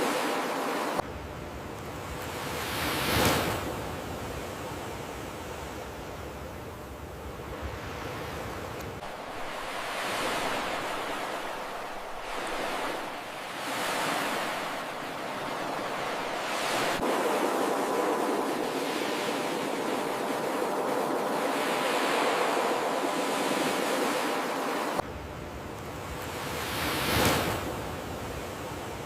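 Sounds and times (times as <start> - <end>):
ocean waves breaking: 0.0 - 1.0, 1.6 - 25.0, 25.9 - 29.0.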